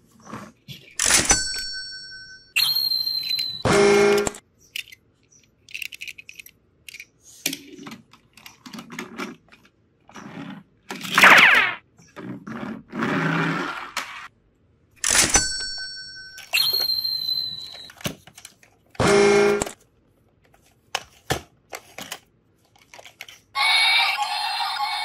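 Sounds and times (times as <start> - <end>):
toy train electronic tones: 2.6 - 4.4, 16.4 - 17.9, 23.6 - 25.0
plastic toys clicking and knocking: 3.2 - 9.8, 20.4 - 23.6.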